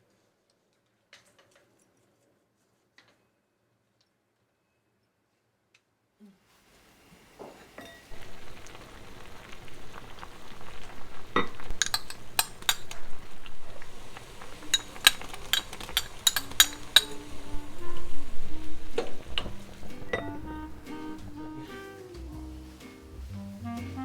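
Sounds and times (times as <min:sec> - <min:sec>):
food sizzling: 0:07.1 - 0:24.0
utensils clinking on pots: 0:10.0 - 0:21.3.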